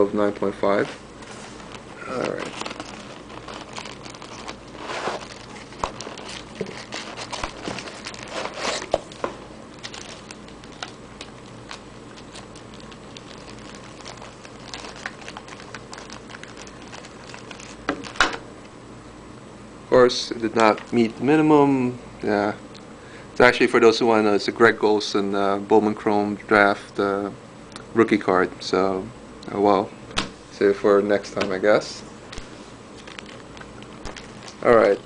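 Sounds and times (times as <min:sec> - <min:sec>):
plastic packaging crinkling: 0:01.5 - 0:18.4, 0:20.5 - 0:21.2, 0:32.3 - 0:35.0.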